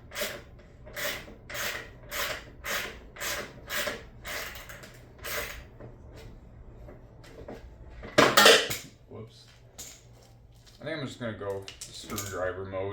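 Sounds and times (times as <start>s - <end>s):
ratchet wrench rasping: 0.0s - 5.7s.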